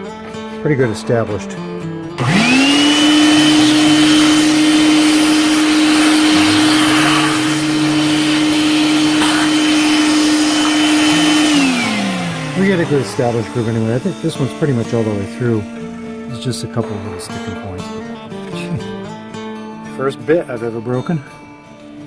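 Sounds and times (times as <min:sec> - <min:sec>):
router spindle whine: 0:02.2 - 0:16.2.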